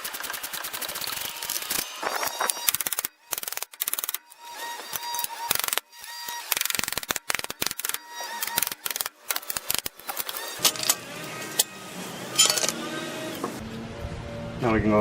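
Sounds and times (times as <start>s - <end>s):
ratchet wrench clicking: 0.3s - 4.2s, 4.9s - 5.8s, 6.5s - 11.0s.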